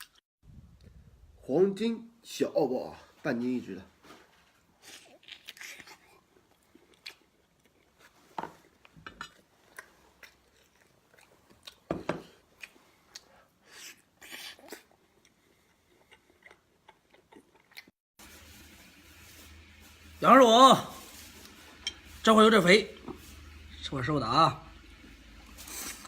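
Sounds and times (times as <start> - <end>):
person chewing food: 4.7 - 18.0.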